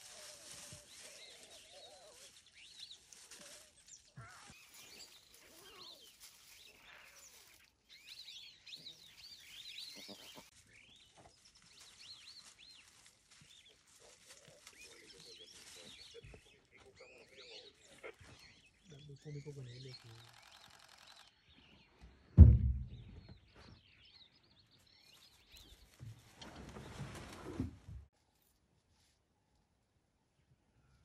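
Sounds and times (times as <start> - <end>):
rustles: 0.0 - 18.7, 24.9 - 29.2
small birds chirping: 0.0 - 27.2.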